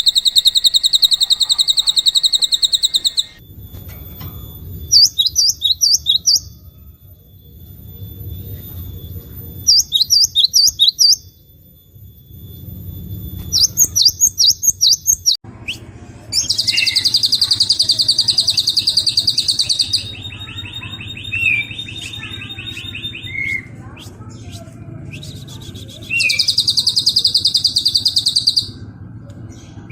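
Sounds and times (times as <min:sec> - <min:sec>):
lower rattling bird calls: 0:00.0 - 0:03.4, 0:16.4 - 0:23.8, 0:26.0 - 0:28.8
songbird high chirps: 0:00.0 - 0:03.4, 0:04.3 - 0:11.5, 0:12.2 - 0:15.8, 0:16.4 - 0:29.9
buzzy bird trill: 0:00.0 - 0:28.9.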